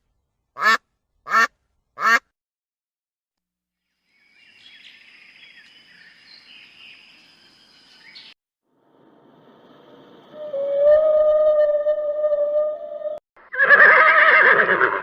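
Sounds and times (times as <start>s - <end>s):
small birds chirping: 3.9s - 8.4s.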